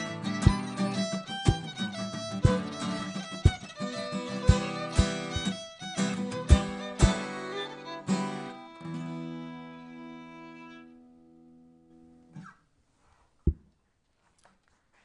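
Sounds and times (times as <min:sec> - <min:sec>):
fiddle melody: 0:00.0 - 0:11.6
strummed acoustic guitar: 0:00.0 - 0:11.7.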